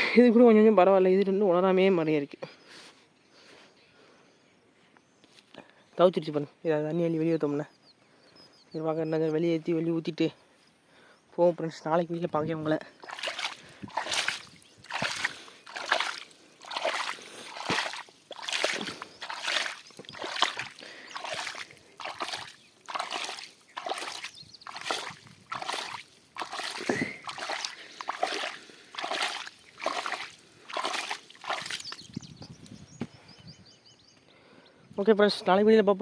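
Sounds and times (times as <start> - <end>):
water splashing: 13.0 - 32.2.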